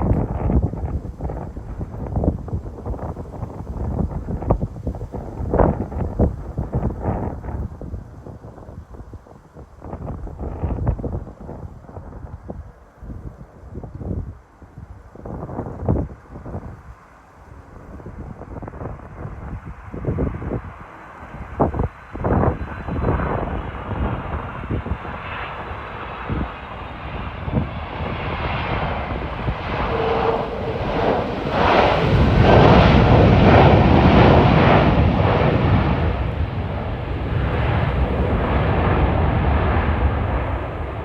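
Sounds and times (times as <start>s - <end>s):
wind buffeting microphone: 0.0s - 41.0s
jet engines roaring: 18.7s - 41.0s.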